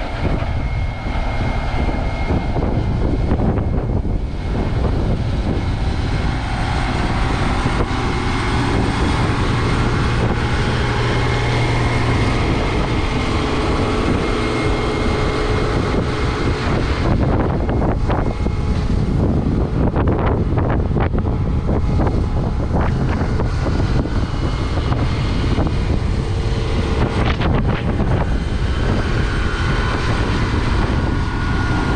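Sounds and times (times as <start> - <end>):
heavy machinery engine running: 0.0 - 31.9.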